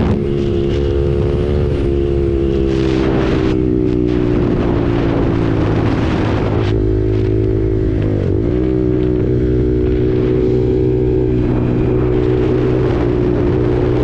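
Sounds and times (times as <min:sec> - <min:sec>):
motorcycle engine running: 0:00.0 - 0:14.0
wind noise on microphone: 0:00.0 - 0:14.0.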